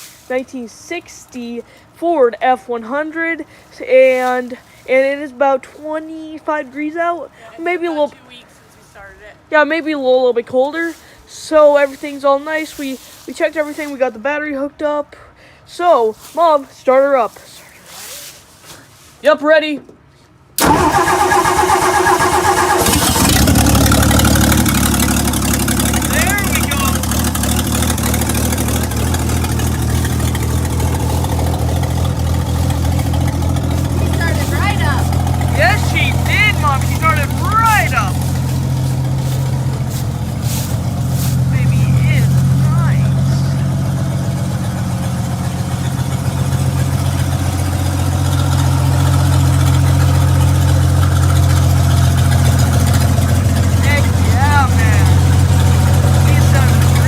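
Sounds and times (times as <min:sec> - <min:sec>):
truck engine idling: 0:20.6 - 0:57.0.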